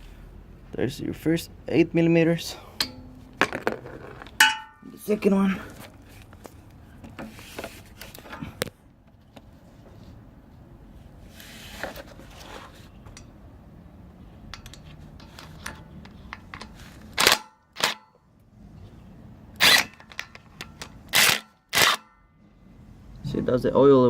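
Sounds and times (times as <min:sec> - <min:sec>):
sharp metallic clanks: 0:02.8 - 0:03.6, 0:04.3 - 0:05.2.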